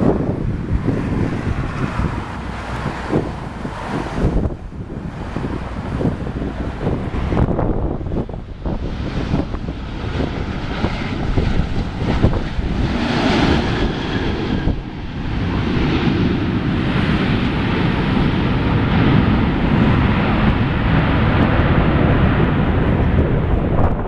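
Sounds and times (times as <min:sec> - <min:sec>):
jet engines rumbling: 0:00.0 - 0:24.0
wind buffeting microphone: 0:00.0 - 0:24.0.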